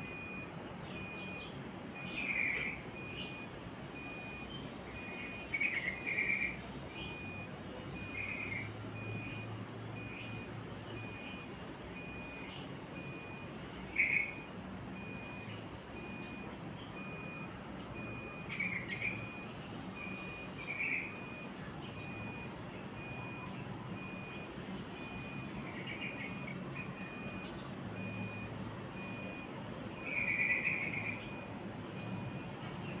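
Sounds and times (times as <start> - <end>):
bird chirping: 0.6 - 3.4, 4.4 - 11.4, 18.4 - 19.4, 20.6 - 21.3, 29.4 - 33.0.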